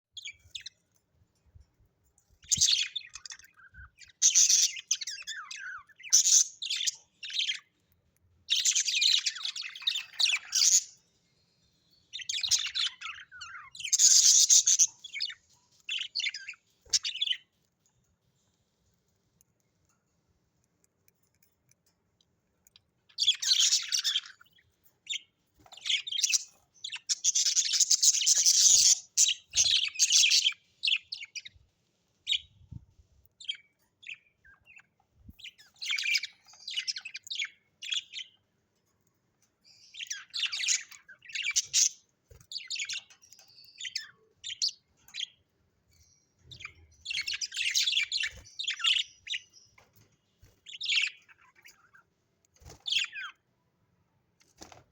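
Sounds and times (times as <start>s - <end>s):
budgerigars chirping: 2.5s - 7.7s, 8.5s - 11.0s, 12.1s - 17.4s, 23.2s - 31.5s, 33.5s - 38.4s, 39.7s - 45.3s, 46.5s - 49.5s.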